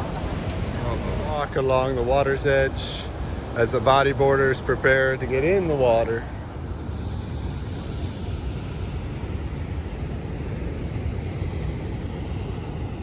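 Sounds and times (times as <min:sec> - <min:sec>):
ocean surf breaking: 0:00.0 - 0:06.7
wind buffeting microphone: 0:00.0 - 0:13.0.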